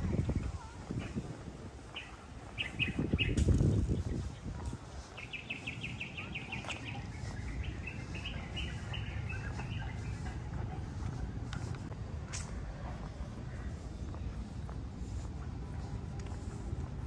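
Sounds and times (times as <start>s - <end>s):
steady low rumble: 0.0s - 17.0s
bird trilling and chirping: 1.8s - 4.4s.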